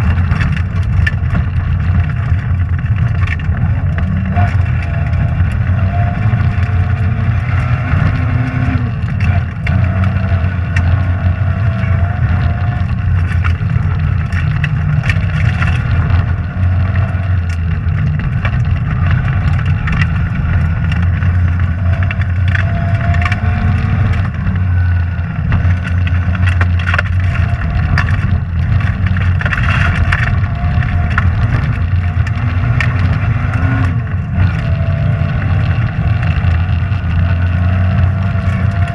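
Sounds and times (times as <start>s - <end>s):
rally car engine revving: 0.0s - 38.9s.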